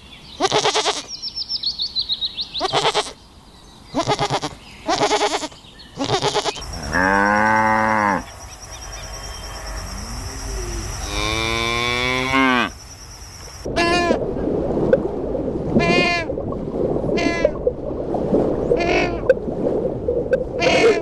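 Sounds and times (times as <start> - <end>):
quavering bleats: 0.4 - 1.1, 2.6 - 3.2, 4.0 - 12.7
cow mooing: 6.3 - 12.7.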